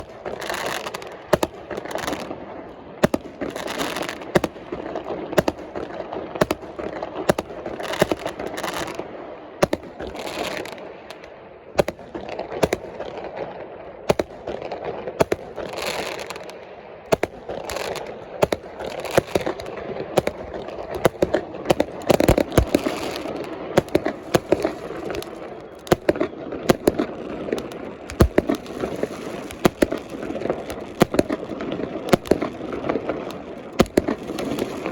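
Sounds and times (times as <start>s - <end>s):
fireworks shells bursting: 15.2s - 34.9s.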